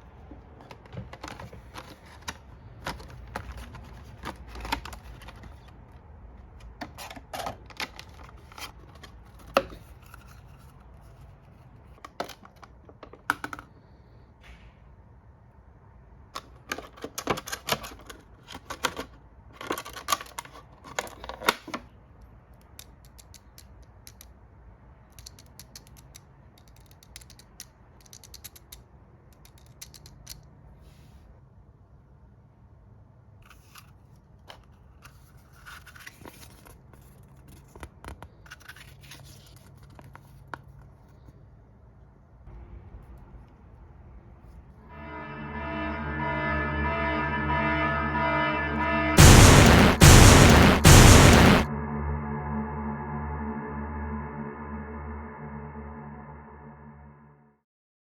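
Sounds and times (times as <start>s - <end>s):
plastic toy parts clicking: 16.4s - 21.9s, 22.5s - 24.4s, 25.1s - 30.5s.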